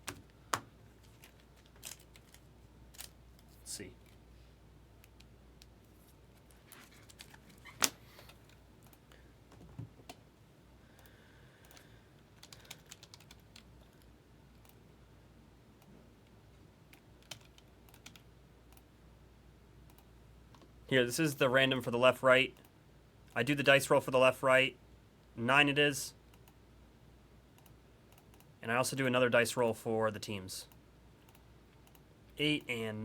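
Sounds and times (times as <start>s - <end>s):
keyboard typing: 12.4s - 13.7s, 16.9s - 18.2s.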